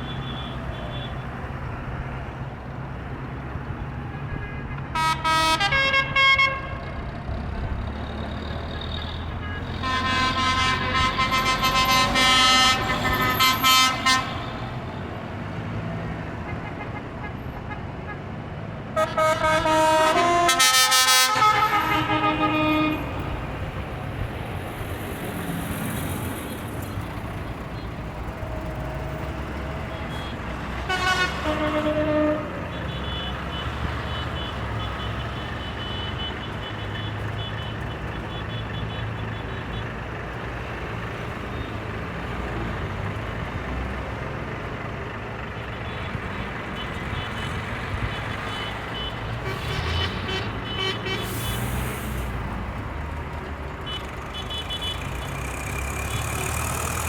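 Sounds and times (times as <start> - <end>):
horns tooting: 0.0 - 2.2, 4.1 - 7.1, 8.1 - 15.4, 19.0 - 24.2, 25.3 - 42.4, 45.6 - 52.5, 53.8 - 57.0
tractor engines rumbling past: 0.0 - 57.0.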